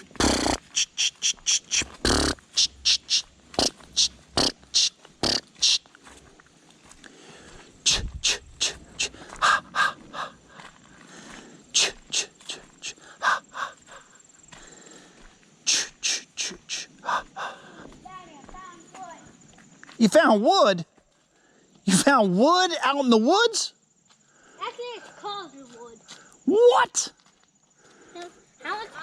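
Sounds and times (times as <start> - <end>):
footsteps crunching through dry leaves: 5.8 - 7.8.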